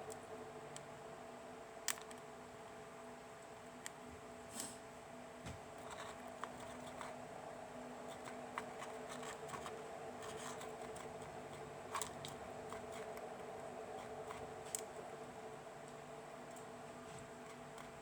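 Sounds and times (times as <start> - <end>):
steady low hum: 0.0 - 18.0
small clicks and taps: 1.8 - 2.2.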